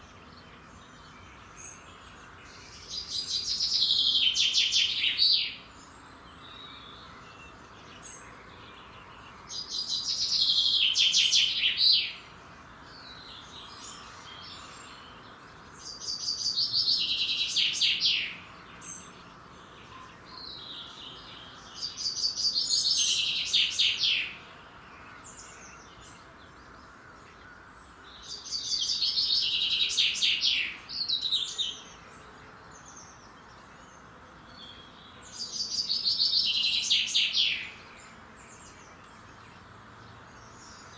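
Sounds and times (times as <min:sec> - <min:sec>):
songbird singing: 0:00.0 - 0:40.9.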